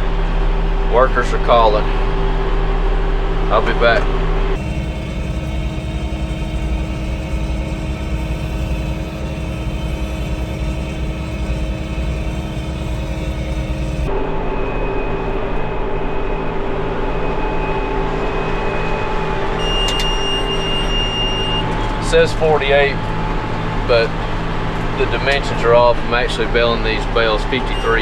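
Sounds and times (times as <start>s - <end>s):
tractor engine running: 4.6s - 14.1s.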